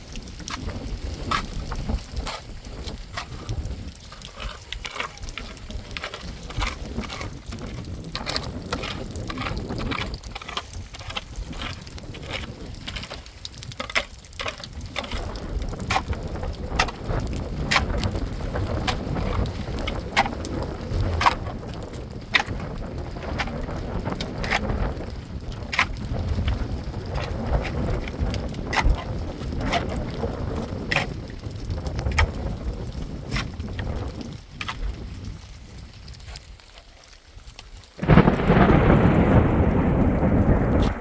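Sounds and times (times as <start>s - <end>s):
wind rumbling on microphone: 0.0s - 41.0s.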